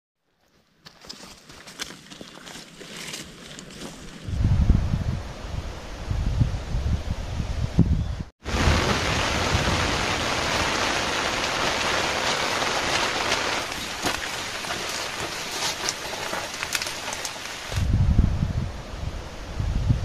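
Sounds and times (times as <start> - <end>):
heavy rain pouring: 8.4 - 17.9
sharp raindrop hits: 8.4 - 17.9.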